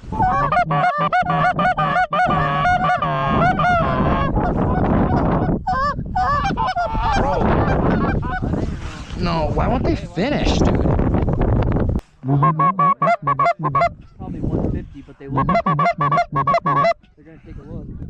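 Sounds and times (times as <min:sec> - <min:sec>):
goose honking: 0:00.1 - 0:04.5, 0:12.3 - 0:14.0, 0:15.3 - 0:17.0.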